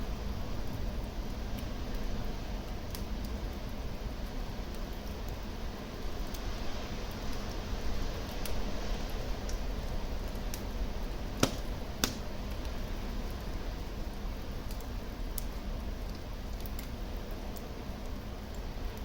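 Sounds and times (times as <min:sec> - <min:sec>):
wood fire crackling: 0:00.0 - 0:19.0
sharp fire pops: 0:11.3 - 0:12.8.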